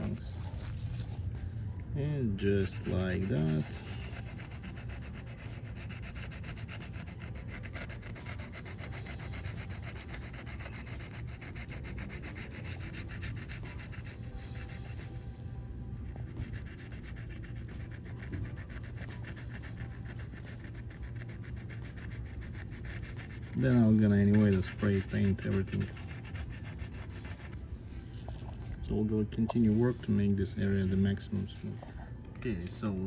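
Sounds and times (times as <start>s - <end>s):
steady low hum: 0.0s - 33.0s
hand file scraping metal rim: 2.4s - 14.9s, 16.6s - 27.4s.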